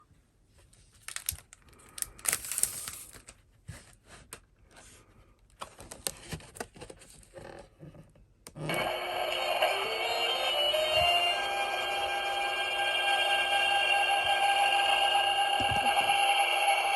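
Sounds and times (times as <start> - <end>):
paper and plastic rustling: 0.6 - 7.4
electronic whine rising in pitch: 8.7 - 16.9.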